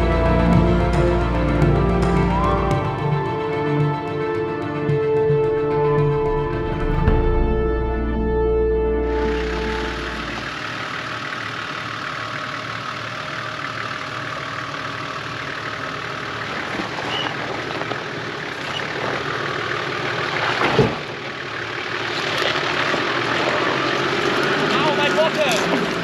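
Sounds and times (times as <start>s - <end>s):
off-road vehicle engine: 0.0s - 26.0s
tyres on rocky dirt track: 9.3s - 26.0s.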